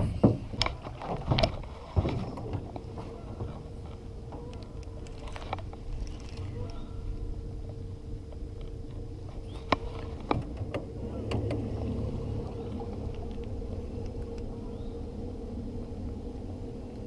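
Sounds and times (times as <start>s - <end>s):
small boat engine hum: 0.0s - 17.0s.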